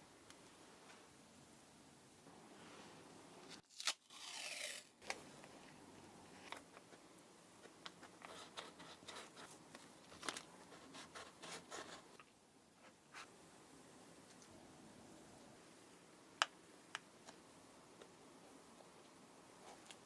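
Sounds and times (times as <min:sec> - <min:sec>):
tearing scraping sound: 0:03.6 - 0:04.9.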